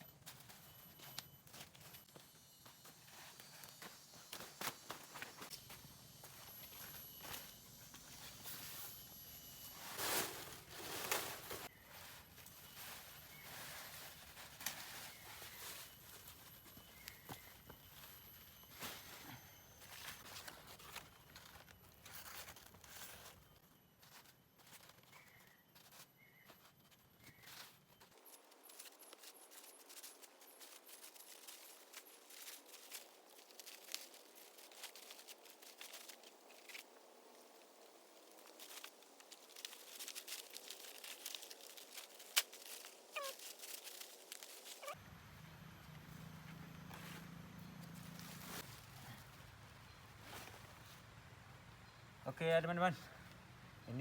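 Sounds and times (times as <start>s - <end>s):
dry leaves rustling and crackling: 9.6s - 51.1s.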